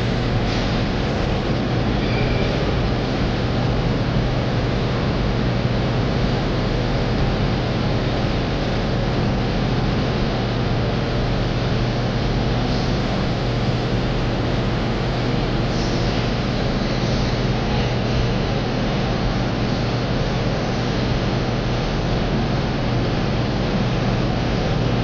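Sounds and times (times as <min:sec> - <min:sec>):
electric fan rushing air: 0:00.0 - 0:25.0
fan motor hum: 0:00.0 - 0:25.0.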